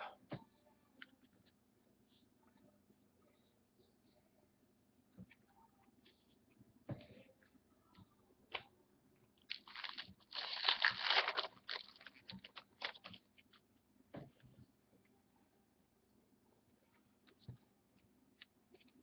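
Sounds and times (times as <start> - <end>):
foil wrapper crinkling and tearing: 9.5 - 13.2.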